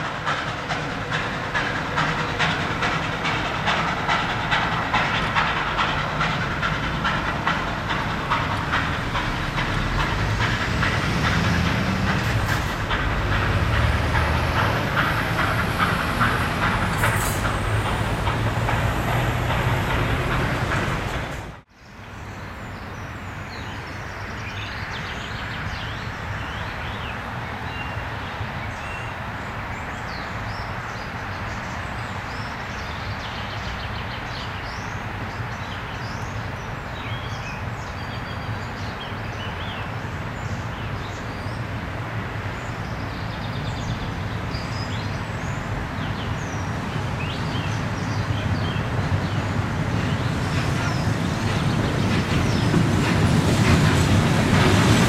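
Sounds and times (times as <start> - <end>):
outdoor background noise: 0.0 - 55.0
steam train running past: 0.0 - 55.0
birds chirping: 0.2 - 22.0, 42.5 - 55.0.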